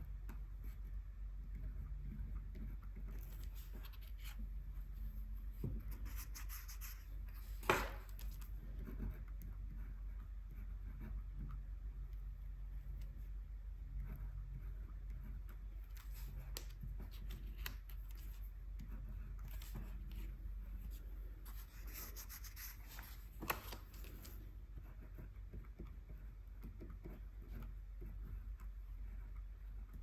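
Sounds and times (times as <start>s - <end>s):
paintbrush brushing on paper: 3.2s - 7.6s, 19.6s - 23.3s.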